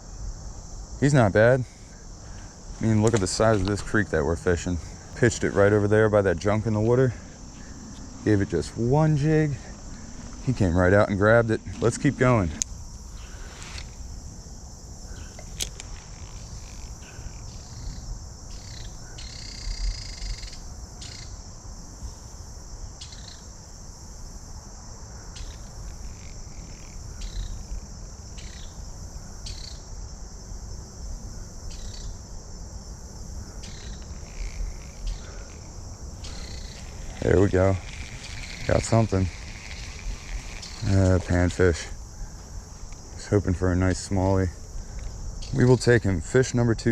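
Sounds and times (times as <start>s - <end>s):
insect chorus: 0.0s - 46.9s.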